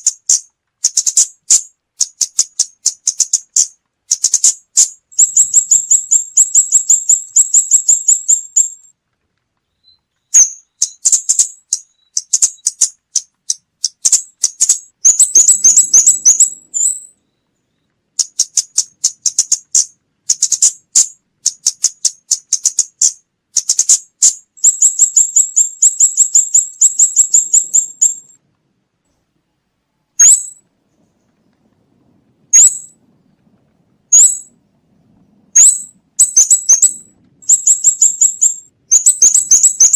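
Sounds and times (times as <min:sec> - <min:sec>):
bird high-pitched ticking calls: 0:00.0 - 0:09.0, 0:09.6 - 0:28.4, 0:30.2 - 0:30.6, 0:32.5 - 0:32.9, 0:34.1 - 0:34.6, 0:35.6 - 0:39.9.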